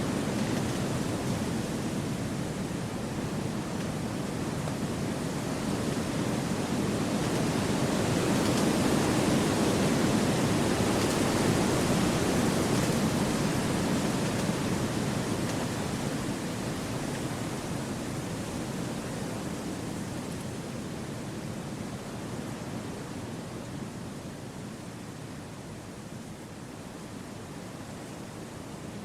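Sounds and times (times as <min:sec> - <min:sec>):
wind rushing through forest: 0:00.0 - 0:29.0.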